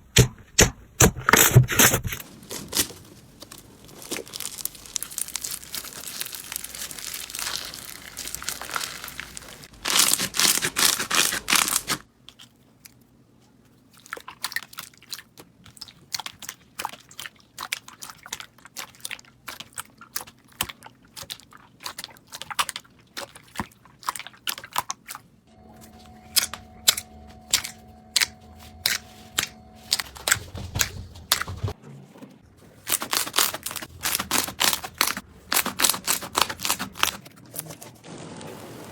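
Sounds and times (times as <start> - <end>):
slime clicking and popping: 3.9 - 12.0.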